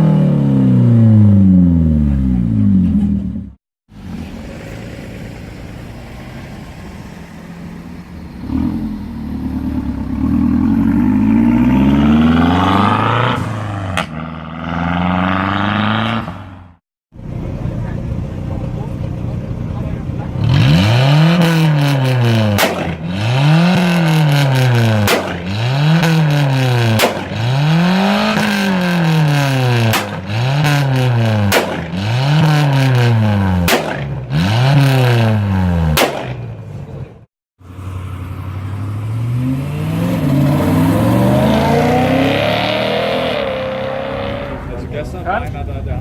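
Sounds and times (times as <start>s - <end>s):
engine accelerating: 0.0s - 36.2s, 37.6s - 45.6s
car engine revving: 0.0s - 36.4s, 37.7s - 45.4s
sharp exhaust crack: 21.4s - 35.1s.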